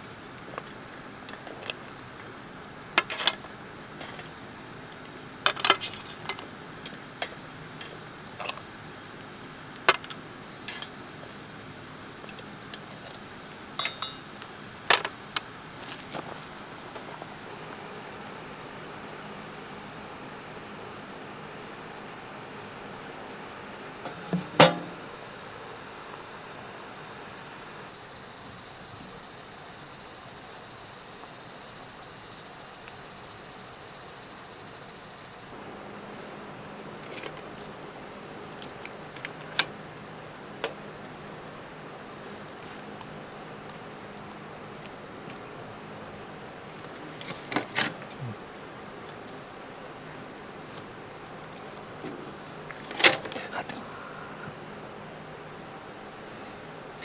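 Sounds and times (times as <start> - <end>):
high insect buzz: 0.0 - 57.0
sharp knocks: 24.1 - 25.1.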